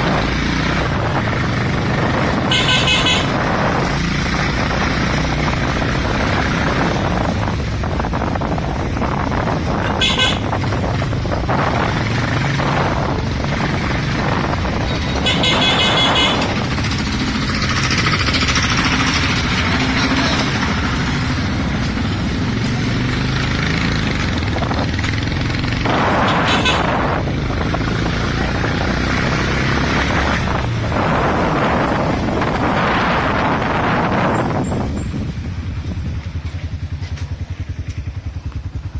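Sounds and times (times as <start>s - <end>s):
motorcycle engine running: 0.0s - 38.9s
horns tooting: 2.1s - 3.8s, 9.6s - 10.8s, 14.3s - 17.0s, 25.8s - 27.7s.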